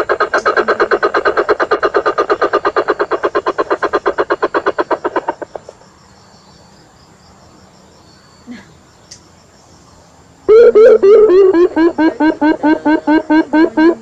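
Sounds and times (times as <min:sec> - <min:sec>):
rapid pulsed calls: 0:00.0 - 0:06.8, 0:09.1 - 0:14.0.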